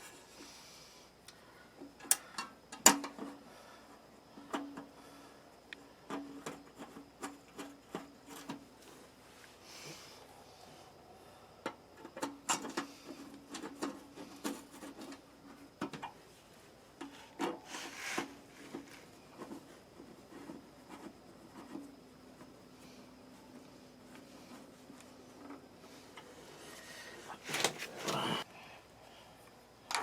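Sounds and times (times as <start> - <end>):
parts clicking and knocking: 1.8 - 3.4, 11.6 - 16.2
scrape: 17.0 - 19.7.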